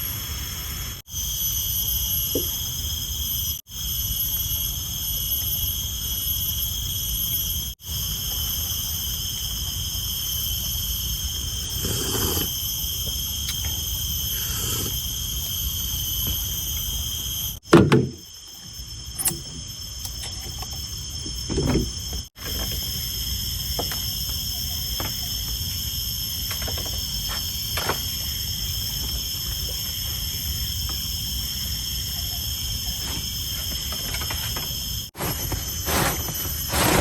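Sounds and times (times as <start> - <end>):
high-pitched insect drone: 0.0 - 17.6, 18.2 - 37.0.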